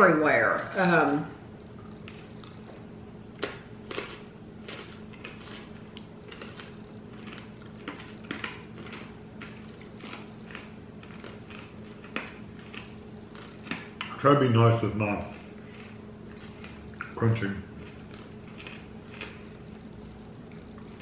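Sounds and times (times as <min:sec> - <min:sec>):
faint steady hum: 0:00.0 - 0:21.0
hard candy crunching: 0:03.4 - 0:19.6.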